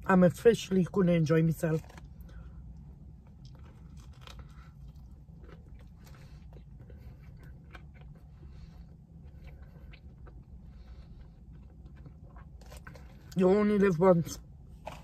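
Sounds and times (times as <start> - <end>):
low steady hum: 0.0 - 15.0
person chewing with mouth smacks: 3.2 - 13.4.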